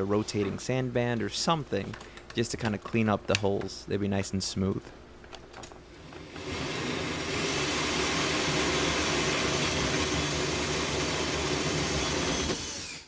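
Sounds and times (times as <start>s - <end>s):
power tool motor running: 5.9s - 13.0s.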